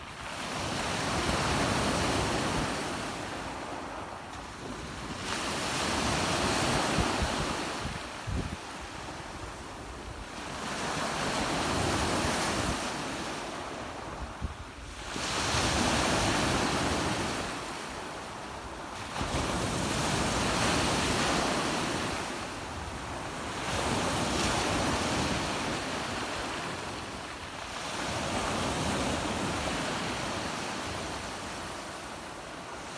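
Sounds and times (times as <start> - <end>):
wind buffeting microphone: 6.4 - 10.2.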